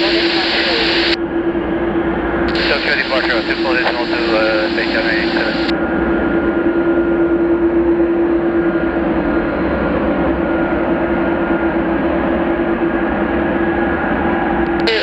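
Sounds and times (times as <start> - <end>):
constant hum: 0.0 - 5.9, 12.4 - 15.0
jet engines of climbing airliner: 0.0 - 15.0.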